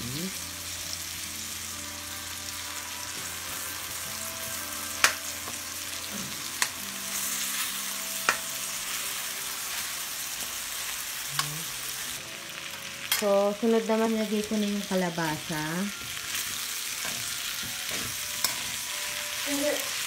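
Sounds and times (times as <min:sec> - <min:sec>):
food sizzling in oil in a wok: 0:00.0 - 0:20.0.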